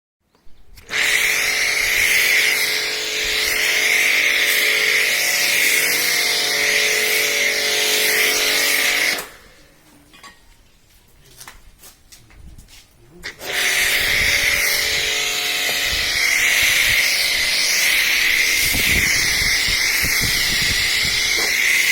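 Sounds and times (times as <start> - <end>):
pressure washer spray hissing: 0.8 - 9.4, 13.3 - 21.9.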